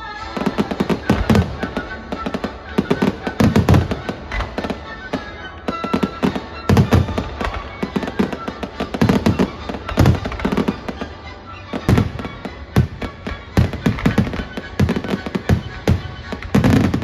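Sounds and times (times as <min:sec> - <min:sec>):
fireworks bangs and crackles: 0:00.0 - 0:17.0
heavy firework booms: 0:11.9 - 0:17.0.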